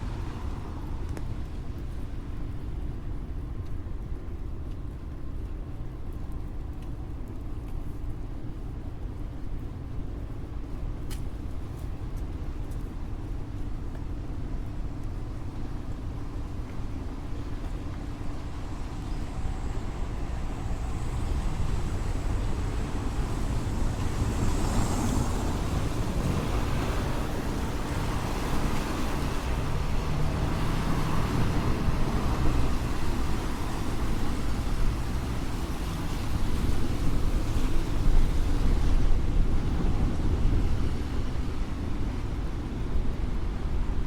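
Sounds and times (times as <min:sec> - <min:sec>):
low traffic rumble: 0:00.0 - 0:44.0
tyres hissing on wet road: 0:18.2 - 0:42.5.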